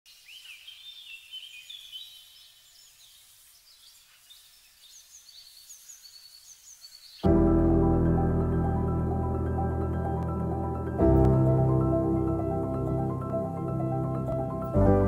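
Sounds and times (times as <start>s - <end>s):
open-air ambience hiss: 0.1s - 7.3s
birds chirping faintly: 0.1s - 7.7s.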